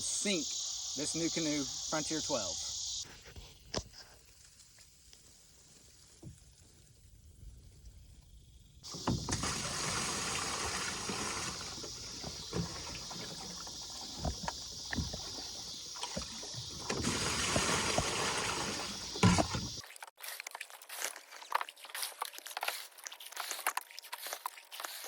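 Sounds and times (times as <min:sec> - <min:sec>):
water running and splashing: 0:08.9 - 0:25.0.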